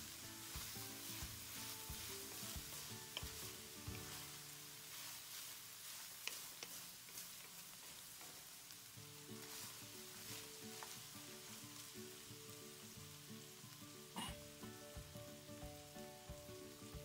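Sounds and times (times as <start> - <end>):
meat sizzling in a wok: 0.0 - 17.0
spatula clicking against pan: 0.6 - 4.1, 6.2 - 7.6.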